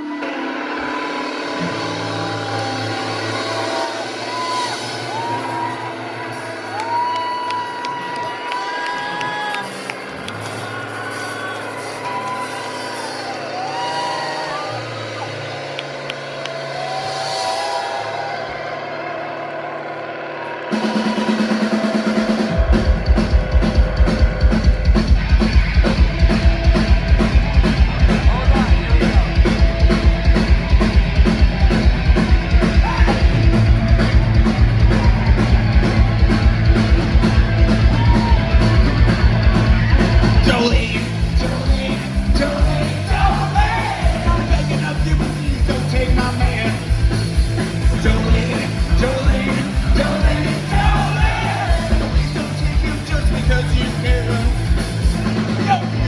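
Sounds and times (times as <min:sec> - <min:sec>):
fast rock music: 0:00.0 - 0:56.0
voices over music: 0:38.0 - 0:56.0.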